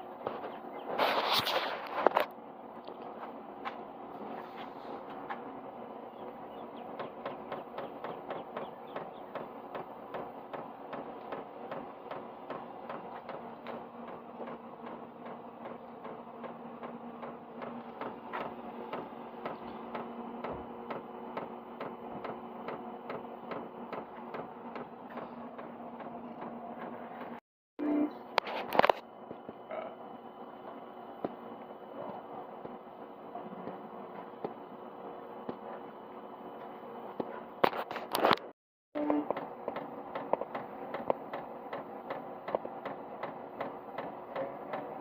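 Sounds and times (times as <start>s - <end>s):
heater fan hum: 0.0s - 38.4s, 39.0s - 45.0s.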